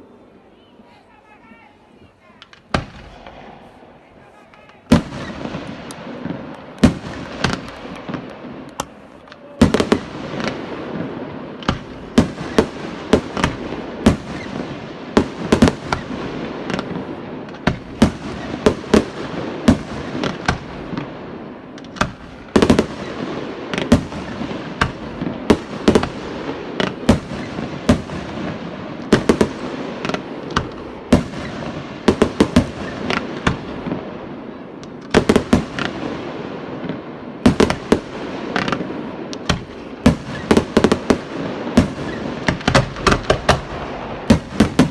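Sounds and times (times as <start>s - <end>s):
fireworks crackling: 0.0s - 44.9s
fireworks bangs: 0.8s - 44.9s.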